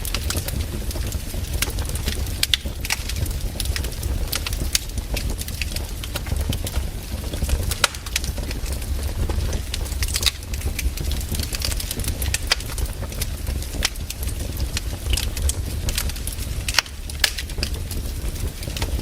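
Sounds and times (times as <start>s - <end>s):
low steady rumble: 0.0s - 19.0s
wood fire crackling: 0.0s - 19.0s.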